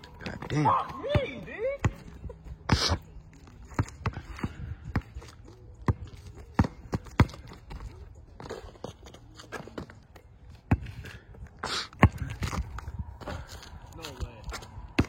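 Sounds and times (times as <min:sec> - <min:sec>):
shoes on court: 0:00.0 - 0:15.0
basketball bouncing: 0:00.3 - 0:02.2, 0:05.8 - 0:07.8, 0:10.6 - 0:11.0, 0:11.9 - 0:12.8.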